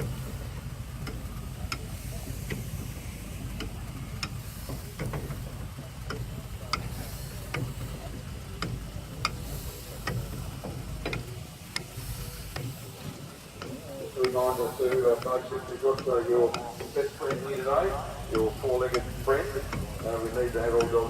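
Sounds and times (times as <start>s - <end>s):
machinery low rumble: 0.0s - 21.0s
sharp metallic ticks: 13.6s - 21.0s.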